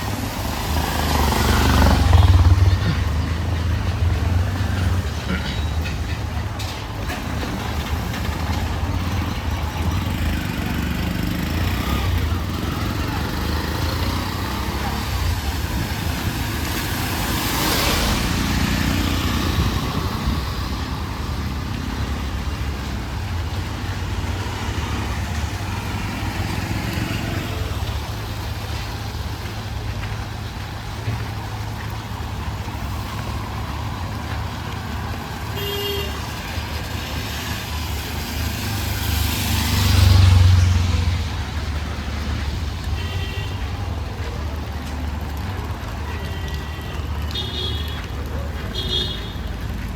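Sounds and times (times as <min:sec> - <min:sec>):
vehicle passing close: 0:00.0 - 0:05.5, 0:07.2 - 0:29.4, 0:36.2 - 0:42.9
vehicle engines rumbling: 0:00.0 - 0:49.9.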